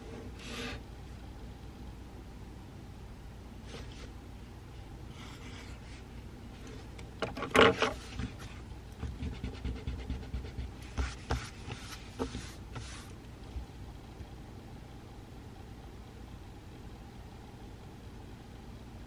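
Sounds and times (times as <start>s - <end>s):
low room hum: 0.0s - 19.0s
pencil writing on paper: 8.1s - 13.1s.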